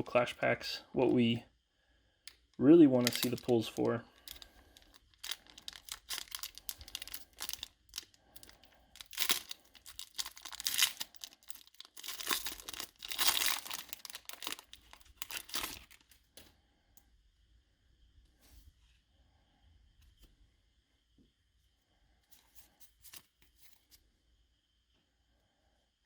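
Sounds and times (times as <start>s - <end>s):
foil wrapper tearing and crinkling: 2.9s - 16.1s.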